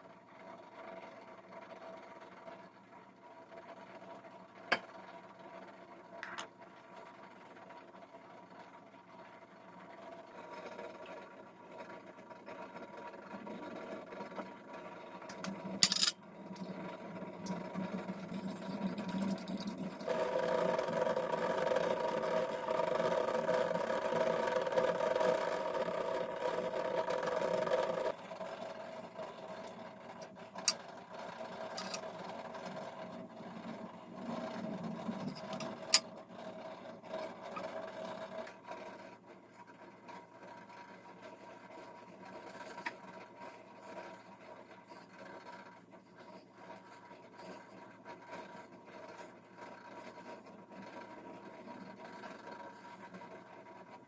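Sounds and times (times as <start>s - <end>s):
small motor humming: 17.5s - 30.4s.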